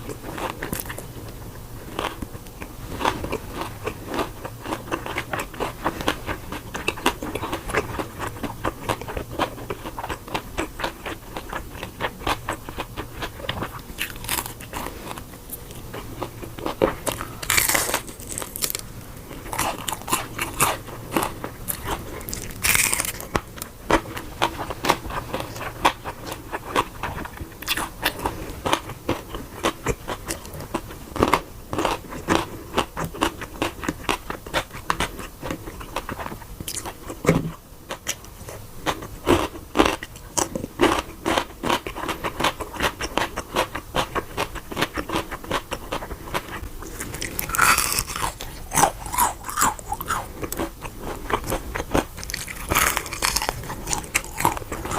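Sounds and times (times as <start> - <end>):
crunchy chewing of fried chicken: 0.0 - 54.9.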